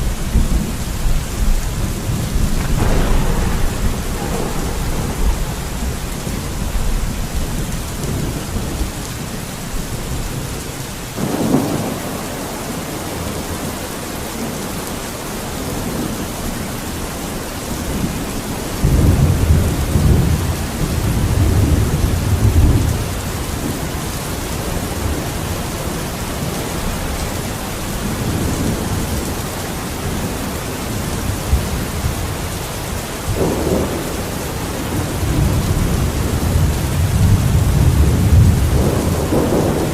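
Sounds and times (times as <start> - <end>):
rain falling with hiss: 0.0 - 39.9
deep low rumbling: 1.4 - 9.2.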